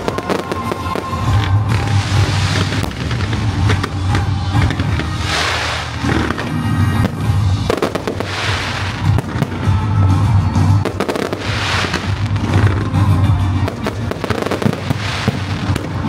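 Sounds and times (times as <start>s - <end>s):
firecrackers crackling: 0.0s - 16.0s
loud music with heavy bass: 0.0s - 16.0s.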